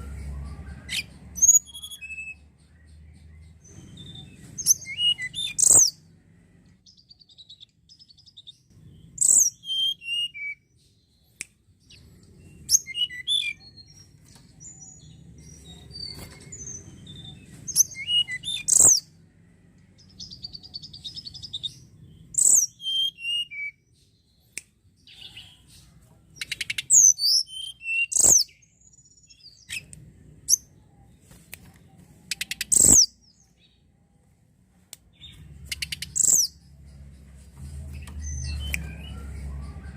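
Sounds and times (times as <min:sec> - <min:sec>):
songbird whistling downward notes: 0:38.0 - 0:39.9.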